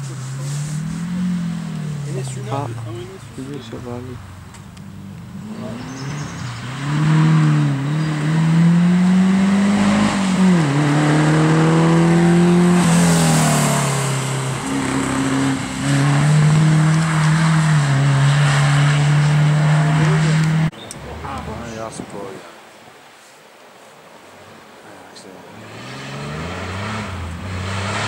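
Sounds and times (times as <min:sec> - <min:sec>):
car engine revving hard: 0:05.4 - 0:20.7, 0:25.6 - 0:28.0.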